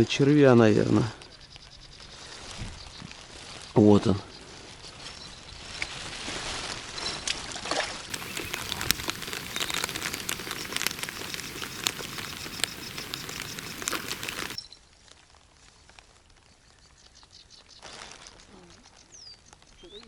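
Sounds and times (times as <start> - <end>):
faint hiss: 8.1 - 14.6
rain pattering: 8.1 - 14.6.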